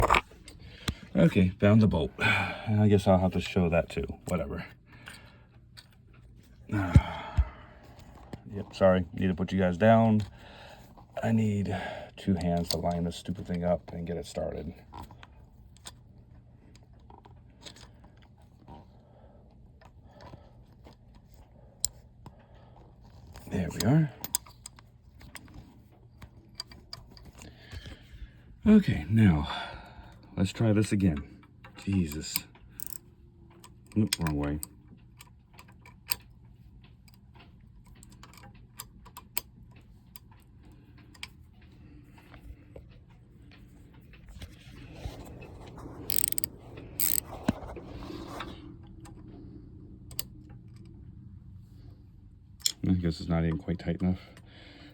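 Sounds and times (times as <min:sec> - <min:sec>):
bolt clicking and scraping: 0:00.0 - 0:01.1, 0:12.2 - 0:18.8, 0:22.8 - 0:28.2, 0:30.8 - 0:49.2.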